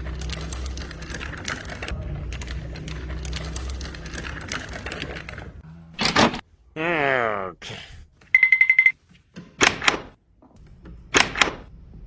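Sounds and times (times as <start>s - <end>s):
rapid irregular clicking and clattering: 0.0s - 5.6s.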